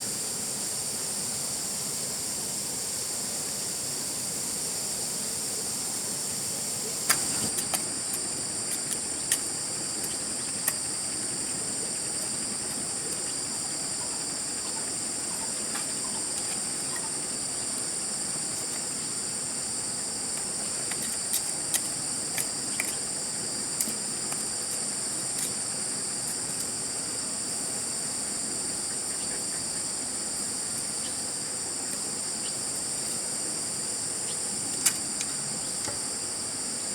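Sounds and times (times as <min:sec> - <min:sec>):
insects chorus: 0:00.0 - 0:36.9.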